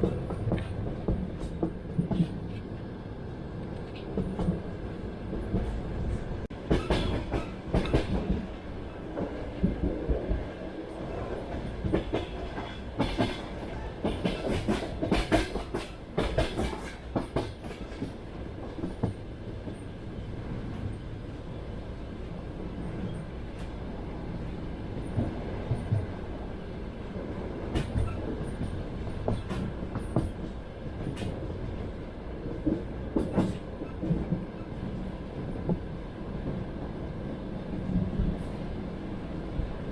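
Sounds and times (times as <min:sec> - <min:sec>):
train carriage rumble: 0:00.0 - 0:39.9
wheel clacks over rail joints: 0:06.6 - 0:10.2.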